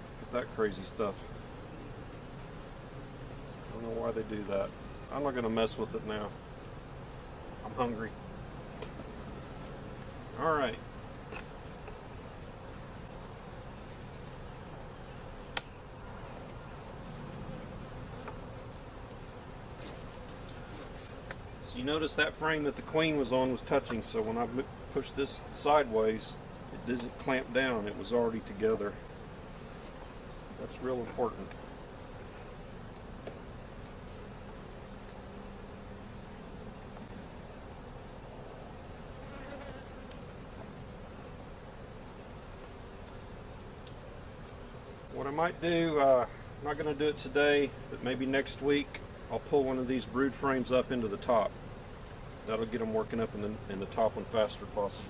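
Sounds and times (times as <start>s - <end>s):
honeybees buzzing: 0.0s - 55.0s
single bee buzzing close by: 31.2s - 45.1s.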